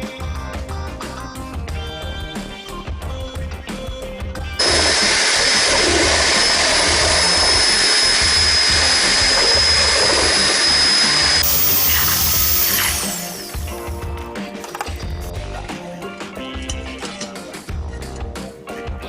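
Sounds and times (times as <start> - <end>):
background music: 0.0 - 19.0
electric motor tool whining: 4.6 - 13.7.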